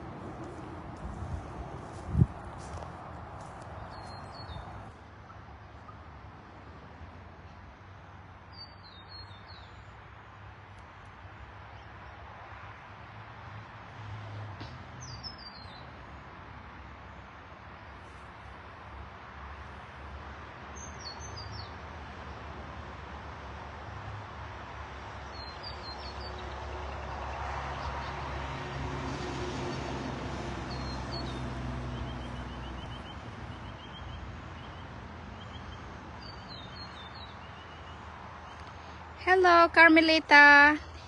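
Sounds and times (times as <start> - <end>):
vehicle engine hum passing: 0.0 - 8.4, 12.2 - 17.0, 18.0 - 39.2
outdoor background noise: 0.0 - 41.0
small birds chirping: 3.4 - 6.1, 30.7 - 39.0.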